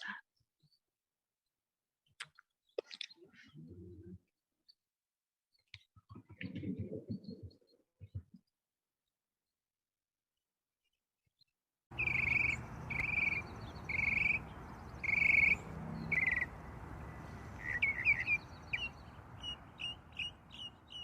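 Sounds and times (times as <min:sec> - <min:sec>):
birds calling: 0:11.9 - 0:21.0
outdoor background hiss: 0:11.9 - 0:21.0.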